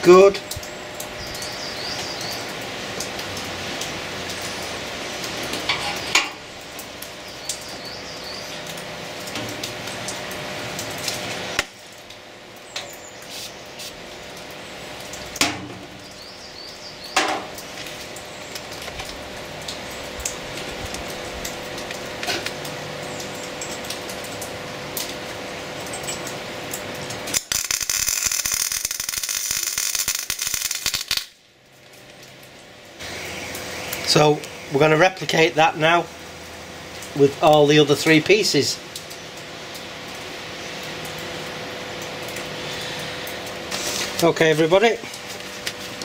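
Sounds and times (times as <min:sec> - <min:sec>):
heavy rain hissing: 0:00.0 - 0:31.4, 0:33.0 - 0:46.0.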